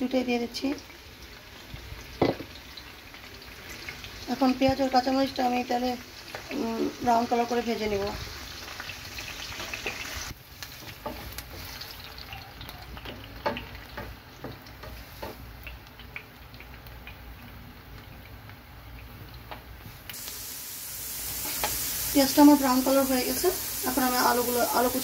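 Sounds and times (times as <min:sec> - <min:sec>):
onions sizzling in hot oil: 0:00.0 - 0:25.0
spatula tapping and scraping: 0:10.6 - 0:12.0, 0:13.0 - 0:15.8.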